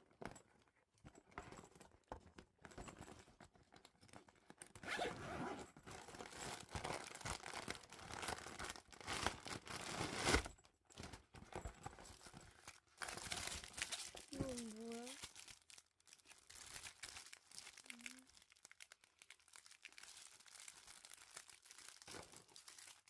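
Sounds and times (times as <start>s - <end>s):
packaging handling noises: 3.2s - 23.0s
packaging ripping: 13.1s - 23.0s.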